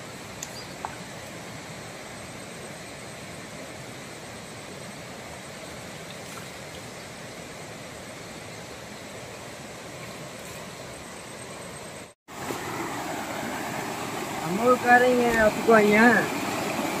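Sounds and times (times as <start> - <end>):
stream water running: 0.0 - 17.0.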